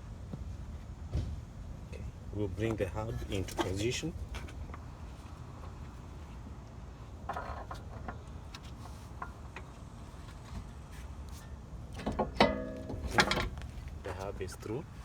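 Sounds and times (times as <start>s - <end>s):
light metallic clicks and knocks: 11.3s - 14.0s
ringing metal clank: 12.2s - 13.6s.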